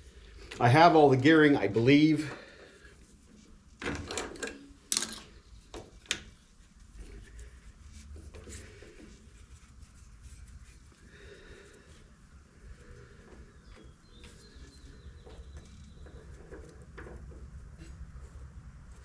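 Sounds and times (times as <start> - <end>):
tools knocking and clicking: 3.8 - 6.3.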